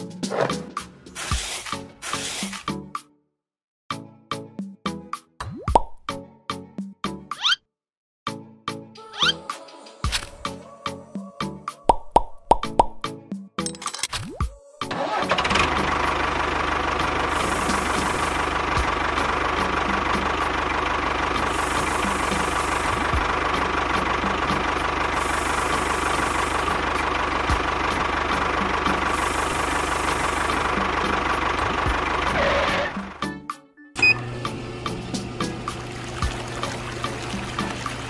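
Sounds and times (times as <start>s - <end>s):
tractor engine knocking: 15.0s - 33.2s.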